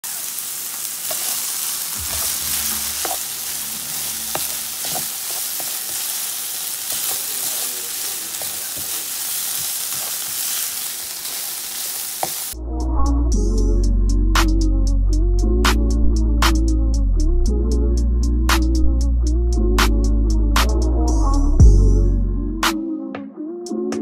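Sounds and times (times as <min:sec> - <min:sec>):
meat and onion sizzling in a skillet: 0:00.0 - 0:12.6.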